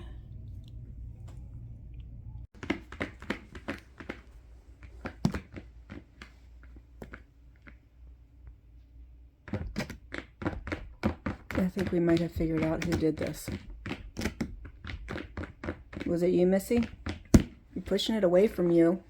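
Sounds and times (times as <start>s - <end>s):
low hum: 0.0s - 2.5s.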